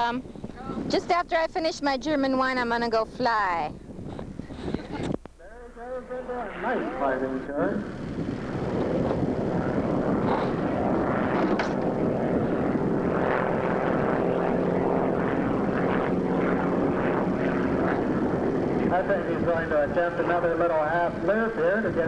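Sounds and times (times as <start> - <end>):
propeller plane engine drone: 0.0 - 22.0.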